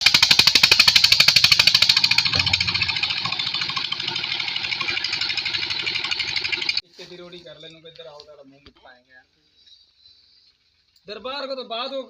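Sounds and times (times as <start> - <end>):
pump engine running: 0.0 - 6.8.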